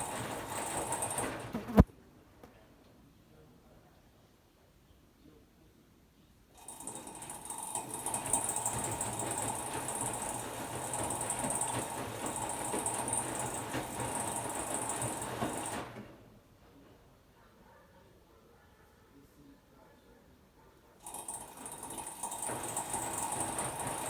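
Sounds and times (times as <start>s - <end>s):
washer-dryer mechanical whir: 0.0s - 1.9s, 6.6s - 16.4s, 21.0s - 24.0s.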